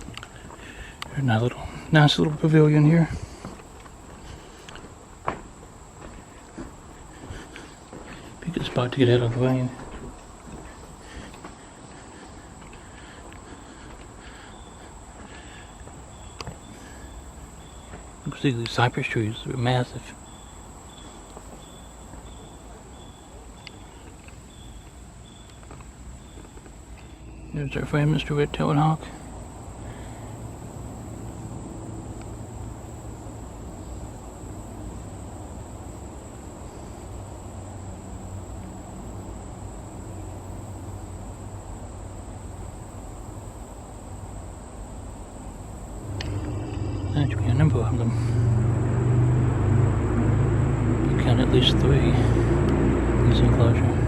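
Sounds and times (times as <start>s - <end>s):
lower insect call: 0.0s - 54.0s
high-pitched insect drone: 45.6s - 54.0s
low rumble: 46.0s - 54.0s.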